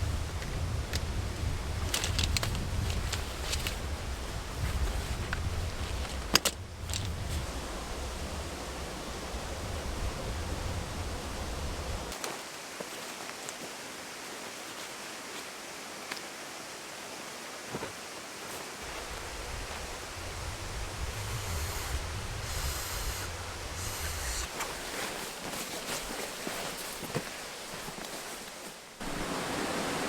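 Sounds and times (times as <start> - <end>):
stream rushing water: 7.4 - 12.8, 27.4 - 30.0
low rumble: 19.0 - 24.5.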